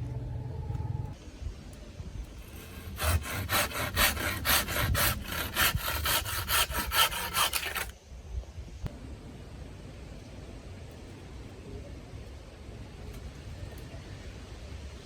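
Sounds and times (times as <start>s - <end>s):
hand saw cutting wood: 2.4s - 7.9s.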